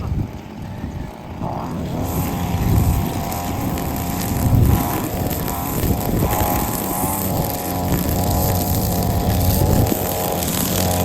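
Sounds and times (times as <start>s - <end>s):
lawn mower engine running: 0.0s - 11.0s.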